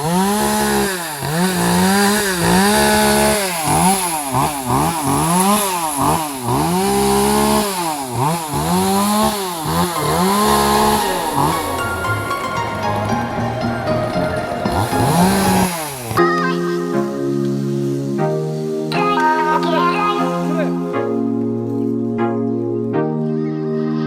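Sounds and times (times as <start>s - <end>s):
chainsaw cutting wood: 0.0s - 16.2s.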